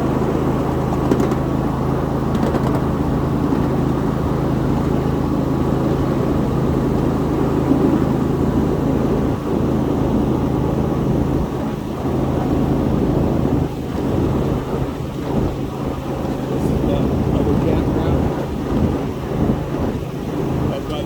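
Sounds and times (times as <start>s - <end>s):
train wheels rumbling on rails: 0.0s - 11.2s.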